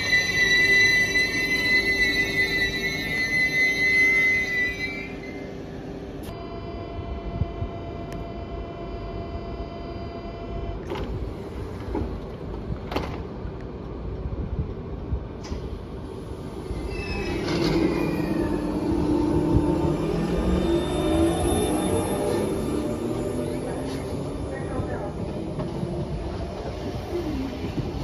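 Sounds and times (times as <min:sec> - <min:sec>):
multi-tone train whine: 0:00.0 - 0:28.0
approaching train rumble: 0:11.2 - 0:28.0.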